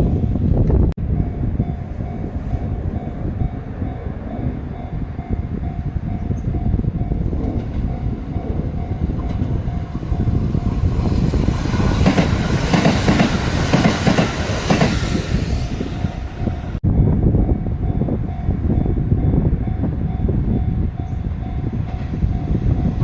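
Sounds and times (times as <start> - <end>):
train rumble: 0.0 - 23.0
crossing warning bell ringing: 1.0 - 11.3, 15.8 - 23.0
train wheels clacking over rail joints: 11.4 - 15.0.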